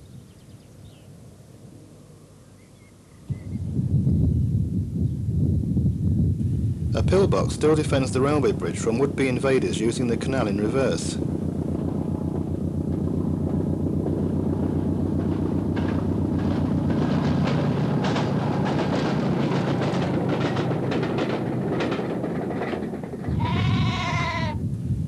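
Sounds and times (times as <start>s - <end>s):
train engine throb: 3.6s - 25.0s
wheels clicking over rail joints: 7.1s - 23.4s
sheep bleating: 23.3s - 24.6s.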